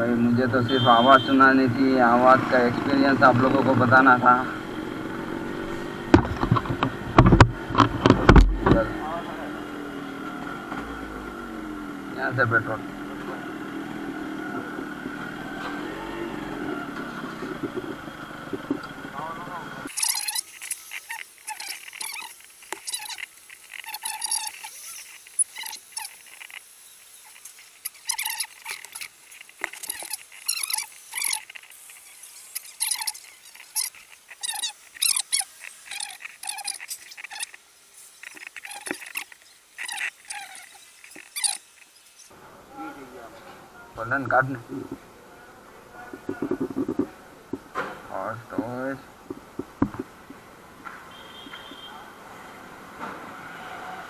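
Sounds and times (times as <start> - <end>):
motorcycle engine running: 2.2 - 19.9
high-pitched animal yelps: 19.9 - 22.3, 32.7 - 37.6, 39.8 - 41.6.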